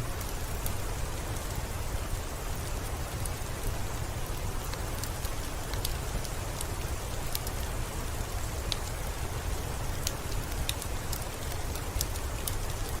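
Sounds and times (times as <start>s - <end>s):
raindrops ticking on a surface: 0.0s - 13.0s
steady rainfall: 0.0s - 13.0s.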